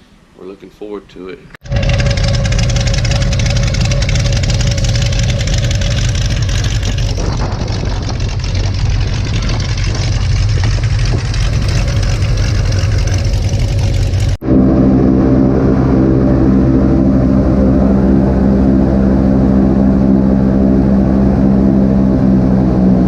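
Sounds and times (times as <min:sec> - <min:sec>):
road and cabin noise: 0:01.6 - 0:14.4
even-pitched engine hum: 0:01.6 - 0:23.0
truck engine running: 0:01.6 - 0:23.0.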